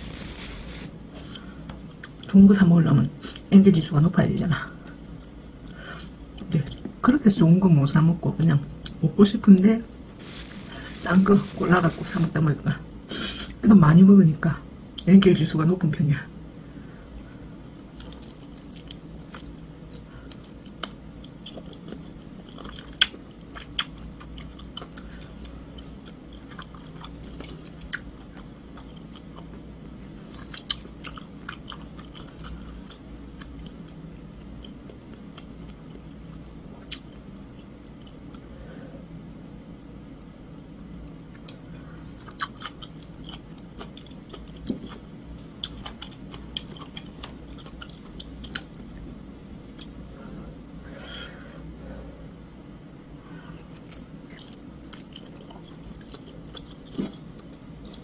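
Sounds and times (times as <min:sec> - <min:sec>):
person chewing meat: 0:18.0 - 0:38.5, 0:41.3 - 0:49.1, 0:53.7 - 0:58.0.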